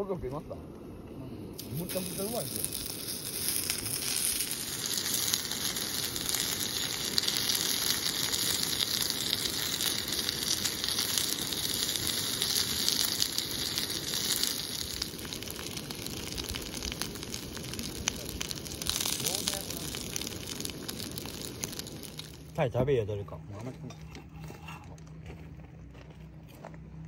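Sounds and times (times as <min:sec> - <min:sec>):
food sizzling in a pan: 0:01.6 - 0:22.7.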